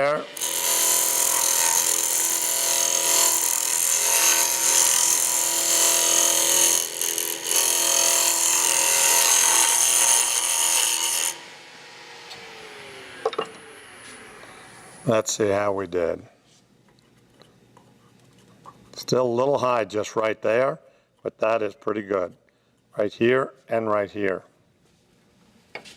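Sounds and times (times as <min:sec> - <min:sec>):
wood lathe motor whine: 0:00.0 - 0:15.1.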